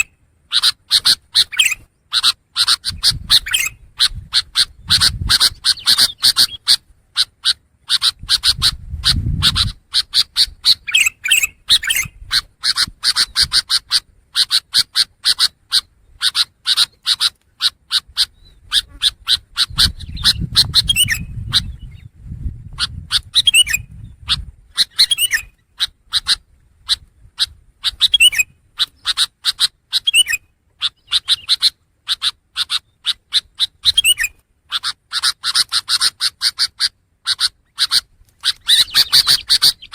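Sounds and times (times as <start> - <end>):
bird chattering song: 0.0 - 39.9
rising whistled bird notes: 19.6 - 22.1, 23.4 - 24.0.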